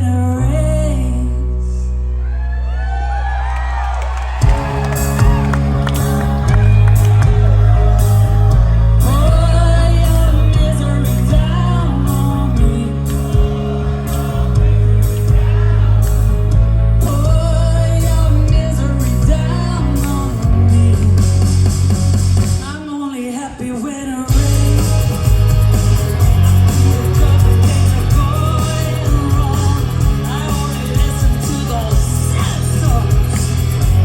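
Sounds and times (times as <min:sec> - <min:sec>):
woman singing lead vocal: 0:00.0 - 0:02.0, 0:08.9 - 0:21.4, 0:22.6 - 0:25.1, 0:26.7 - 0:34.0
rock band playing: 0:04.2 - 0:22.7, 0:24.3 - 0:34.0.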